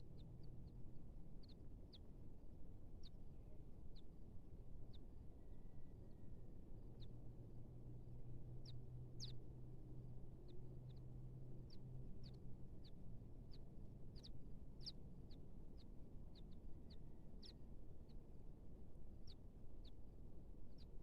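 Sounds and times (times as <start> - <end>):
small bird chirping: 0.0 - 0.8, 1.4 - 2.1, 2.9 - 3.2, 6.9 - 7.2, 8.6 - 9.4, 10.4 - 18.4, 19.1 - 21.0
low steady hum: 0.0 - 21.0.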